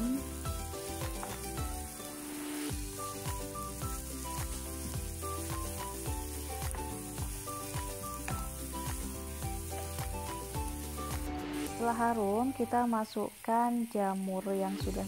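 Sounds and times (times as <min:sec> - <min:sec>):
background music with a beat: 0:00.0 - 0:11.8
onion sizzling in a frying pan: 0:00.0 - 0:15.0.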